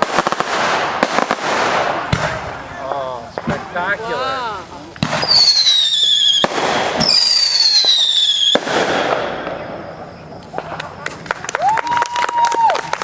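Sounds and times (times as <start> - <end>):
firework crackling: 0.0 - 13.0
firework falling whistles: 5.0 - 13.0.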